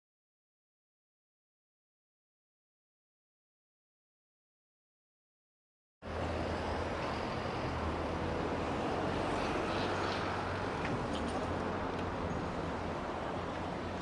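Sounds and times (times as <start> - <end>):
street traffic rush: 6.0 - 14.0.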